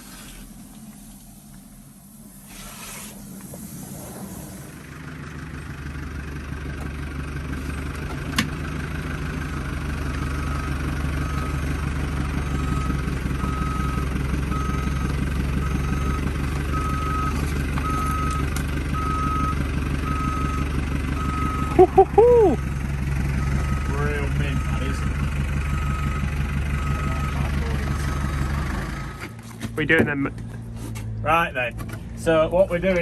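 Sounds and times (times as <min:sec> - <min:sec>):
vehicle engine running: 0:00.0 - 0:33.0
reversing alarm beeping: 0:09.5 - 0:22.7, 0:23.4 - 0:29.2.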